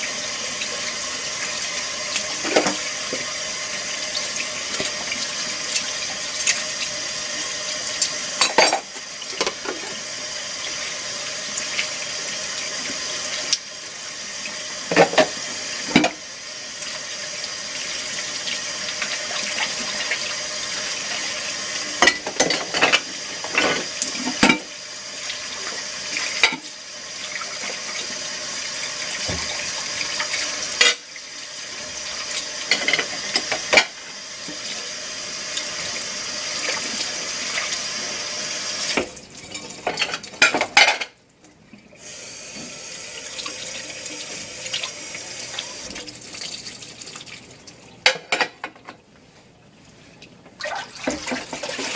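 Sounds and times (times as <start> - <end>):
water running at a sink: 0.0 - 51.9
dishes clinking: 8.0 - 9.6.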